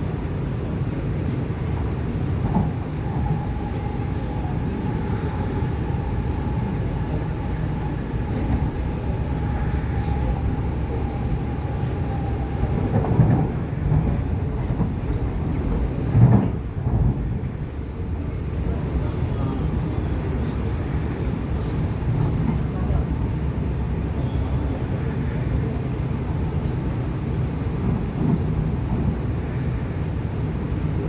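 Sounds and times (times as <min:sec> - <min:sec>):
train wheels rumbling on track: 0:00.0 - 0:31.0
thin steady whine: 0:02.3 - 0:13.4.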